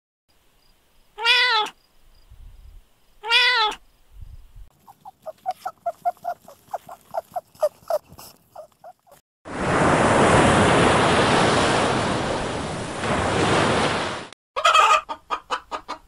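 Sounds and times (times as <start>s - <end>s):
cat meowing: 1.2s - 1.8s, 3.2s - 3.8s.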